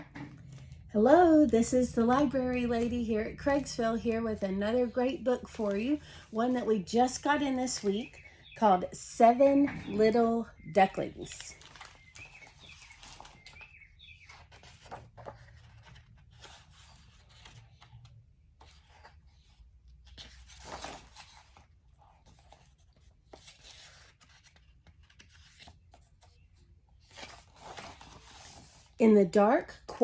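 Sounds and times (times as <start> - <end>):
book pages turning: 0.0 - 0.9, 9.7 - 29.0.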